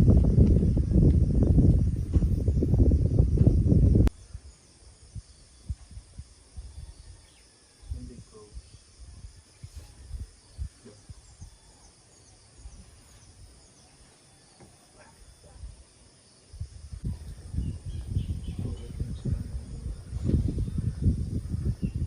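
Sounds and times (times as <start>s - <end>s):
wind buffeting microphone: 0.0s - 11.9s, 16.5s - 22.0s
faint bird or insect chirps: 0.2s - 22.0s.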